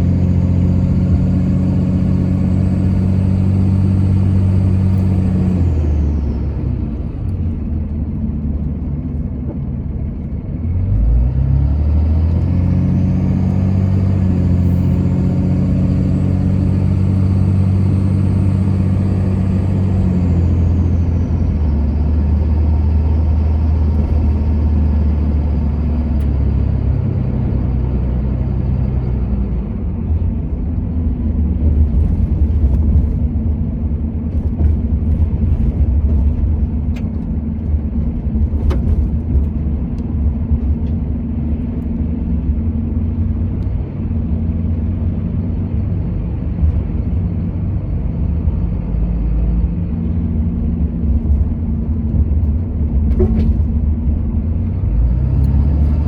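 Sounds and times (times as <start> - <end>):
low road rumble: 0.0 - 56.0
vehicle engine drone: 0.0 - 56.0.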